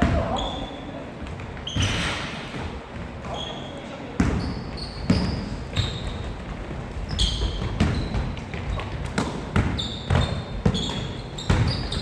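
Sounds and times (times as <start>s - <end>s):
sneakers squeaking: 0.0s - 12.0s
basketball bouncing on floor: 4.2s - 12.0s.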